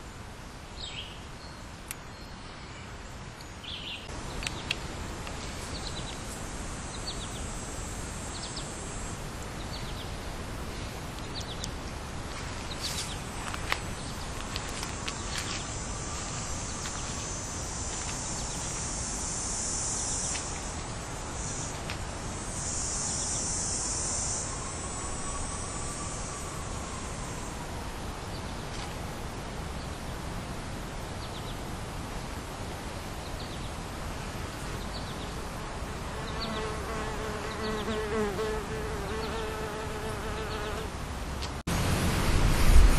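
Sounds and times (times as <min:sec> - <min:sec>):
high insect buzz: 0:03.6 - 0:10.0, 0:12.3 - 0:26.6, 0:34.5 - 0:41.0.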